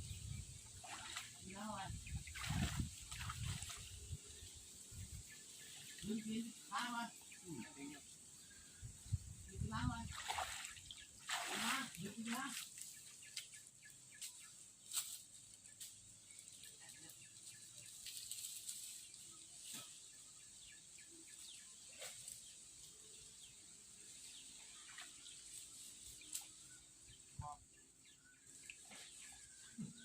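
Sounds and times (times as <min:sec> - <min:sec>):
faint bird chirp: 0:12.4 - 0:30.0.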